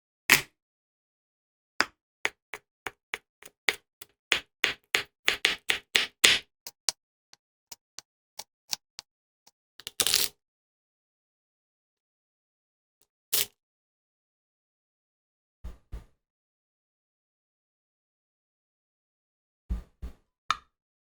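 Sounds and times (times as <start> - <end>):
sharp knocks and taps: 2.3 - 7.0.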